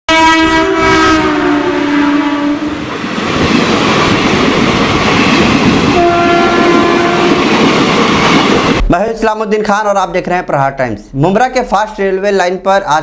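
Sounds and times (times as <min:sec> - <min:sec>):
train horn: 0:00.1 - 0:02.8, 0:05.9 - 0:07.6
train carriages rattling past: 0:00.8 - 0:08.8.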